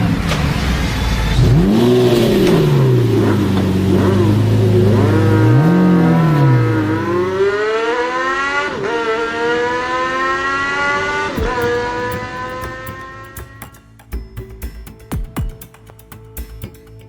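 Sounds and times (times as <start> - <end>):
car engine accelerating: 0.0 - 13.6.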